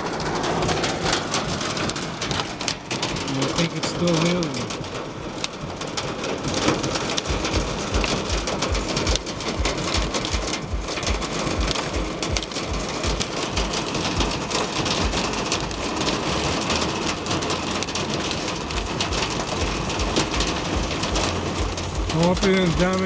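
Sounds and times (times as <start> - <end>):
hail drumming on a vehicle: 0.0 - 23.0
deeper thumps: 7.1 - 23.0.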